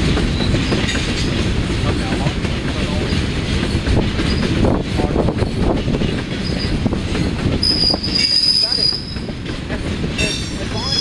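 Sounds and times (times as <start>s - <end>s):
train wheels rumbling and clattering: 0.0s - 11.0s
high wheel squeal: 7.6s - 9.3s, 10.2s - 11.0s.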